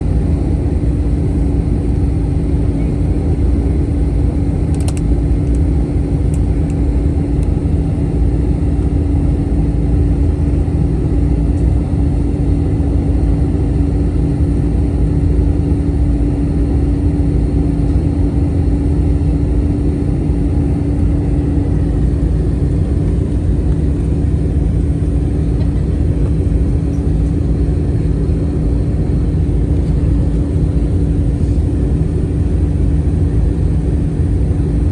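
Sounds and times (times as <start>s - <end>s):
airliner cabin engine rumble: 0.0s - 34.9s
brief click: 4.7s - 5.6s.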